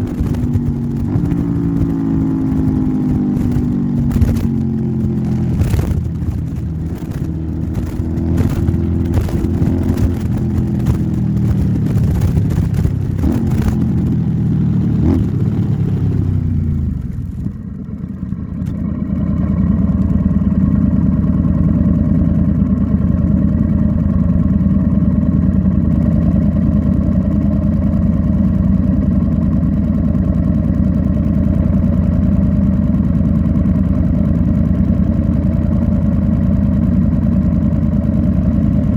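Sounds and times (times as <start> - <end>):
wind buffeting microphone: 0.0 - 17.6
motorcycle engine: 0.0 - 38.9.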